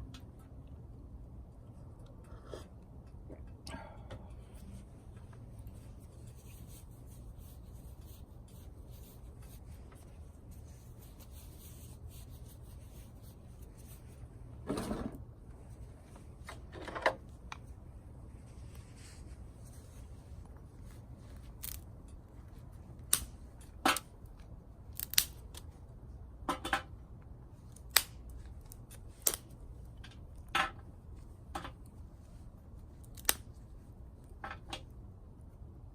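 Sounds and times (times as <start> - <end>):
low steady rumble: 0.0 - 35.9
dry twigs snapping: 21.4 - 21.9, 23.0 - 24.1, 24.9 - 25.7, 27.7 - 29.6, 33.0 - 33.6.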